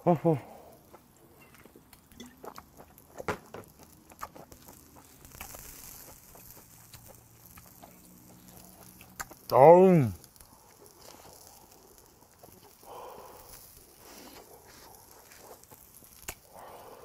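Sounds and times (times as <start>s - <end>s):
soft breathy hiss: 0.0s - 17.0s
wet chewing sounds: 0.8s - 9.5s, 10.2s - 16.6s.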